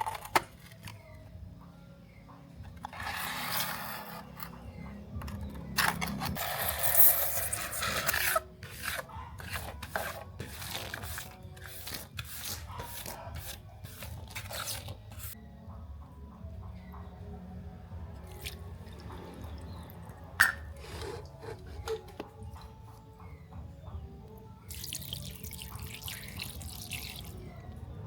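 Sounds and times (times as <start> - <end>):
rasping on toy car part: 2.9 - 4.6, 5.8 - 15.4, 20.8 - 22.2.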